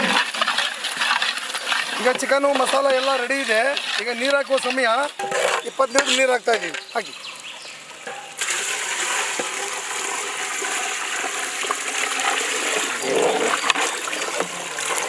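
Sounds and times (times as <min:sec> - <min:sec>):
water pouring into a pot: 0:07.8 - 0:15.0.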